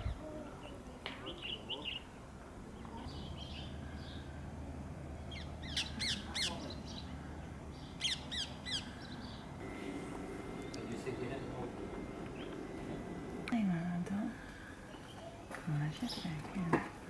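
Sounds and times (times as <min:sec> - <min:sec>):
bird calling: 0:05.2 - 0:15.5.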